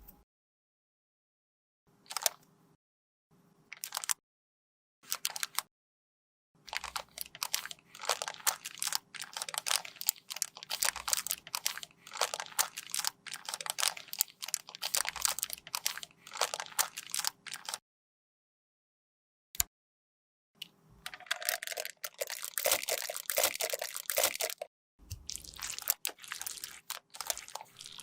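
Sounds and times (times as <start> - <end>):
cosmetic product crunching by hand: 21.4 - 28.0.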